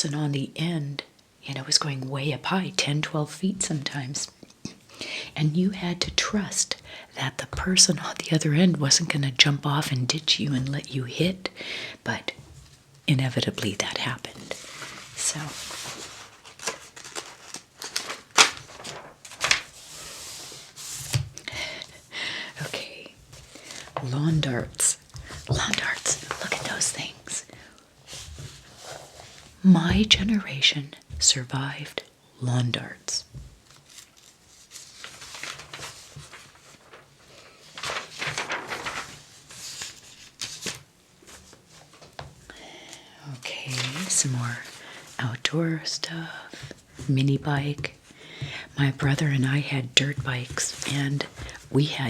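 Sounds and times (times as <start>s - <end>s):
paper pages rustling: 13.6s - 22.0s, 22.6s - 27.4s, 28.0s - 30.3s, 33.5s - 42.4s, 43.6s - 45.2s, 50.0s - 52.0s.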